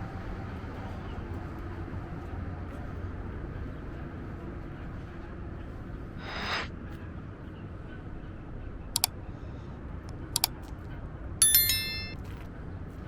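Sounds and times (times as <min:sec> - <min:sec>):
sharp clicks: 0:10.4 - 0:10.7
metallic ring: 0:11.4 - 0:12.2.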